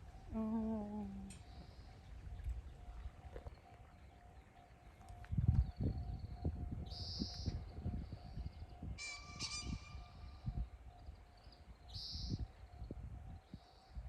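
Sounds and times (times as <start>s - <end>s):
pheasant crowing: 9.0s - 10.3s.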